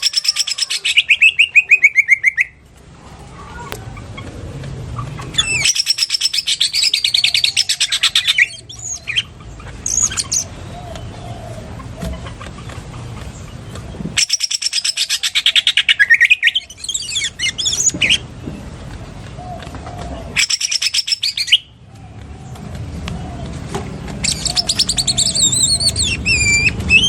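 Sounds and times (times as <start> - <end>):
bird chattering trill: 0.0 - 2.6, 5.0 - 12.6, 13.3 - 18.3, 20.2 - 21.7, 24.2 - 27.0.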